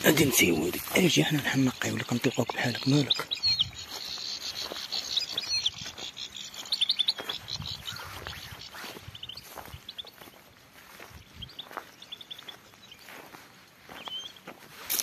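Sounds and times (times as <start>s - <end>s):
footsteps in dry grass: 0.0s - 15.0s
songbirds chirping: 0.0s - 15.0s.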